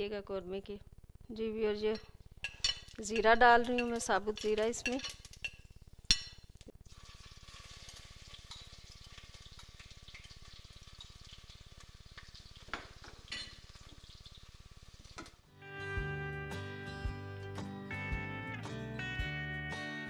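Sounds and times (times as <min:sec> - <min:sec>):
spices sizzling in hot oil: 0:02.2 - 0:15.4.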